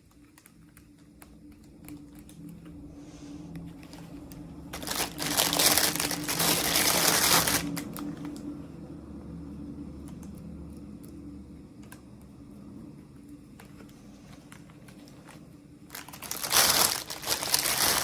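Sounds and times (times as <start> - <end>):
faint low hum: 0.0 - 18.0
plastic packaging crinkling: 3.8 - 8.4, 14.4 - 18.0.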